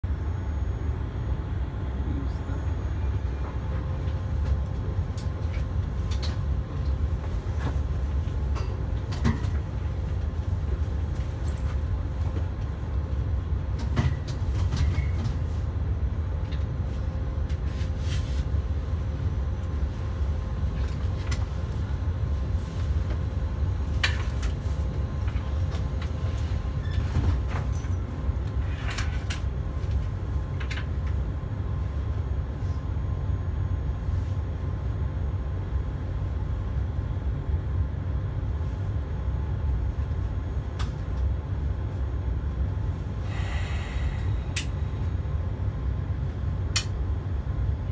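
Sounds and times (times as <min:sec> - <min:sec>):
faint steady hum: 0:00.0 - 0:47.9
train rumble inside carriage: 0:00.0 - 0:47.9.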